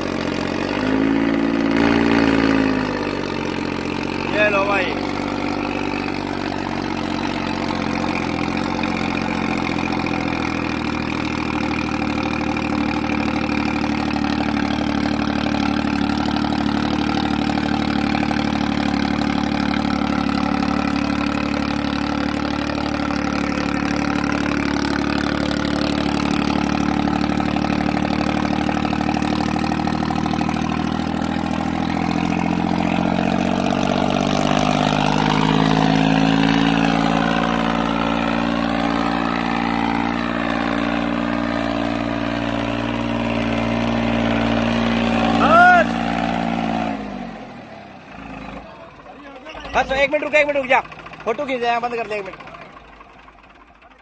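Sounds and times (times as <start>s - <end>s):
tractor diesel engine idling: 0.0s - 54.0s.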